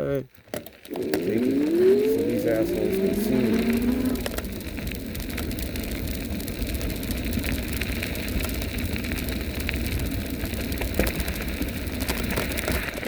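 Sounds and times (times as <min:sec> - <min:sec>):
tyres rolling over dirt road: 0:00.4 - 0:13.0
wind rumbling on microphone: 0:00.9 - 0:13.0
small ticks and rattles: 0:04.2 - 0:13.0.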